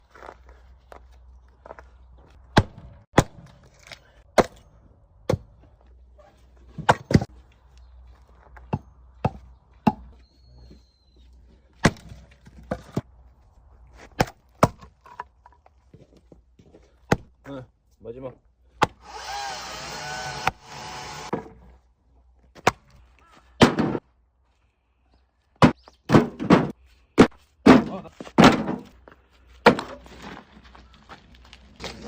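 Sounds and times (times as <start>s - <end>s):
axe chopping firewood: 2.5s - 5.7s, 6.7s - 7.3s, 11.8s - 13.1s, 14.0s - 15.4s, 17.0s - 17.4s, 18.8s - 19.0s, 23.6s - 24.0s, 25.6s - 29.0s, 29.6s - 30.3s.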